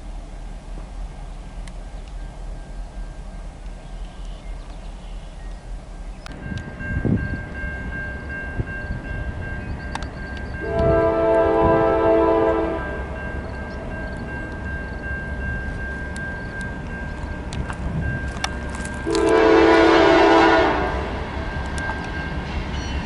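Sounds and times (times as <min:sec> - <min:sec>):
train rumbling: 0:00.0 - 0:23.0
locomotive horn blast: 0:10.6 - 0:13.3, 0:19.0 - 0:21.4.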